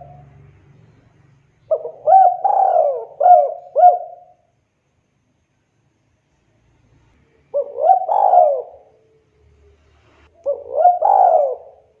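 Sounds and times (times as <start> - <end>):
dove cooing: 1.7 - 4.4, 7.5 - 9.0, 10.4 - 12.0.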